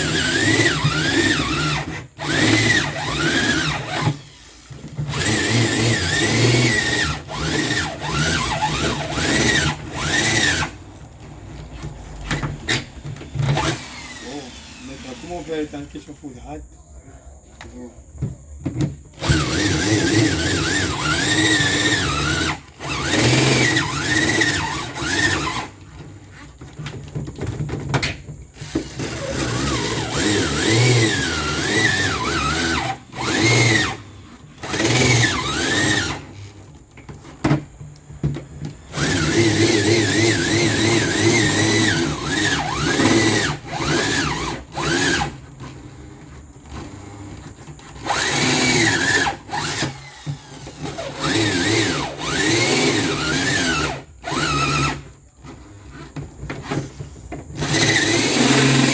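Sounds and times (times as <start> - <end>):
power drill whining in bursts: 0.0 - 16.6, 18.8 - 58.9.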